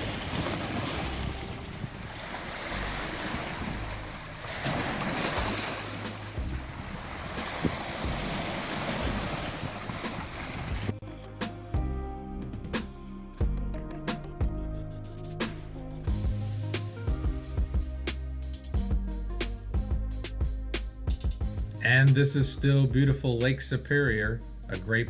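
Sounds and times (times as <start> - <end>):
waves washing on shore: 0.0 - 10.9
wind buffeting microphone: 0.0 - 10.9
music: 0.8 - 25.0.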